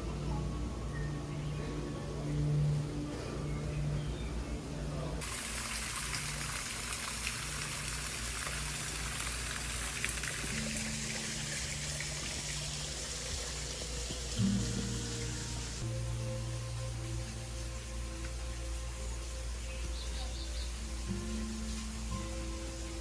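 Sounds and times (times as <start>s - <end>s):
low steady tones: 0.0s - 23.0s
rushing water: 5.2s - 16.0s.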